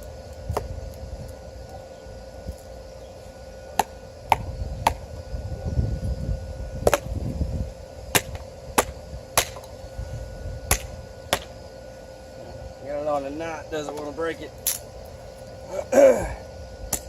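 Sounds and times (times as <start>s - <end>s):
axe chopping wood: 6.8s - 7.1s, 8.1s - 9.7s, 10.7s - 11.5s.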